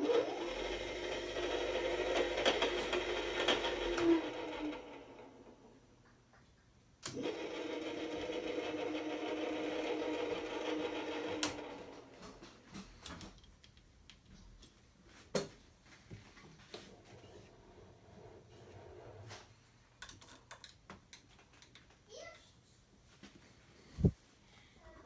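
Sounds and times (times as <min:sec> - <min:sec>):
milling machine motor running: 0:00.1 - 0:05.2, 0:07.1 - 0:11.8.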